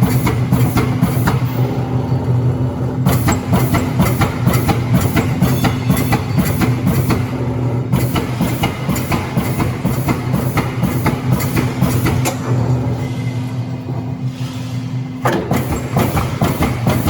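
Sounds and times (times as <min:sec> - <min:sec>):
punch press striking sheet metal: 0:03.0 - 0:07.3, 0:15.2 - 0:17.0.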